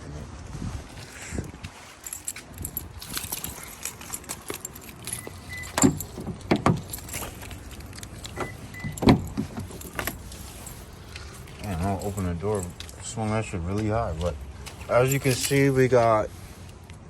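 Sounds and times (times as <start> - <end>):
keys jangling: 1.8 - 13.1, 14.8 - 15.9
truck door clunks: 5.2 - 7.6, 8.2 - 10.2.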